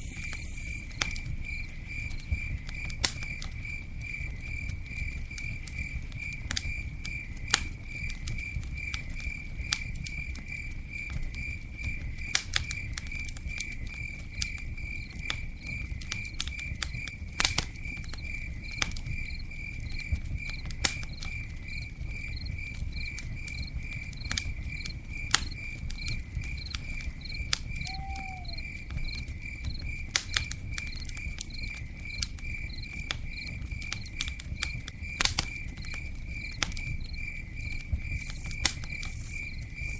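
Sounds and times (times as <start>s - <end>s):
campfire crackling and popping: 0.0s - 39.9s
cricket chirping: 0.0s - 39.9s
low rumble of burning wood: 0.2s - 39.9s
short falling call: 27.8s - 28.6s.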